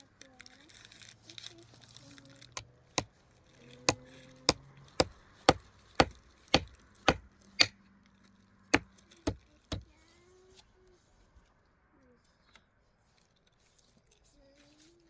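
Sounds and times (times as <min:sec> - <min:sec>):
blade chopping: 0:03.9 - 0:07.8, 0:08.7 - 0:09.9.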